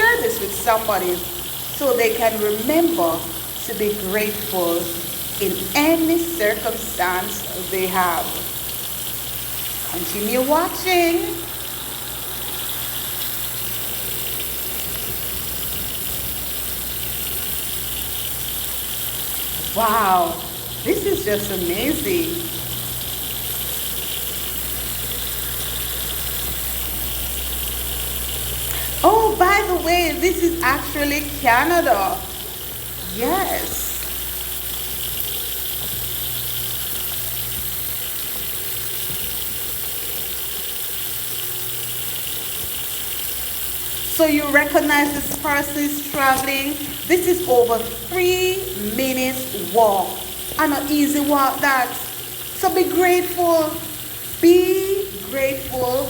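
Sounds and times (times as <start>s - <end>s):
tyres hissing on wet road: 8.6s - 20.8s.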